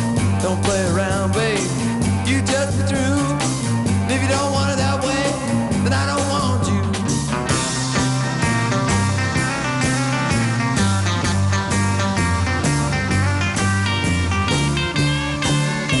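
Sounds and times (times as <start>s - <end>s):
person singing: 0.0s - 7.4s
bass line: 0.0s - 16.0s
drum beat: 0.0s - 16.0s
rock and roll song: 0.0s - 16.0s.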